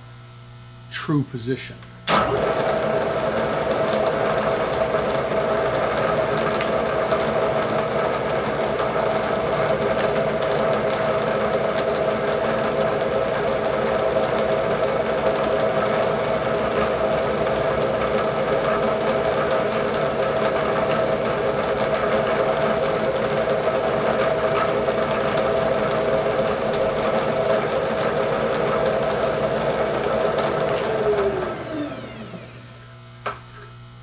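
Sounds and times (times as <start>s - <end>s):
machine tool humming: 30.0s - 34.0s
drill cutting metal: 30.7s - 33.0s.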